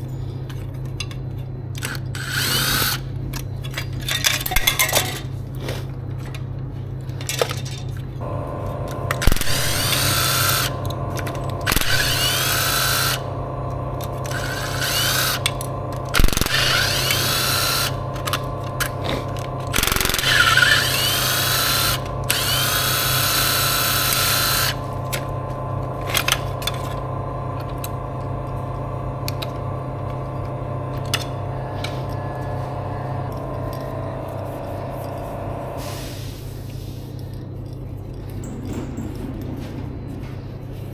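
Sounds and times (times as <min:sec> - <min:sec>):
power tool whine: 0:01.8 - 0:03.1, 0:08.2 - 0:36.3
machine hum: 0:06.1 - 0:40.9.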